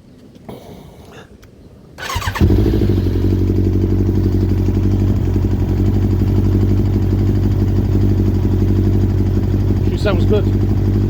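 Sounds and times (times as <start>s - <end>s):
engine cranking on starter: 2.0s - 3.6s
motorcycle engine idling: 2.0s - 11.0s.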